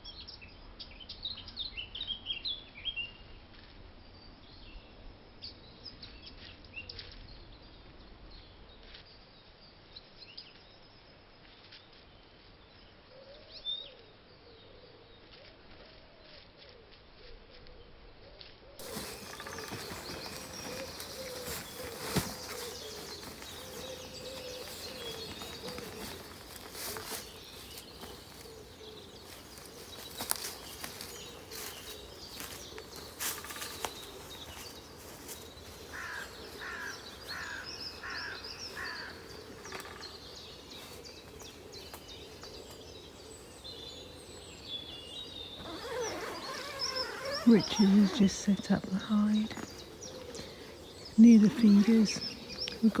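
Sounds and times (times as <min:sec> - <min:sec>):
birds singing and calling: 0:18.8 - 0:53.0.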